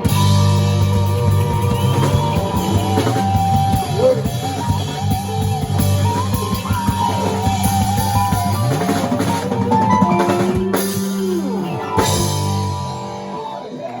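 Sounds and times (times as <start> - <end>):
bending electric guitar notes: 0.0 - 14.0
drum kit fills: 0.0 - 14.0.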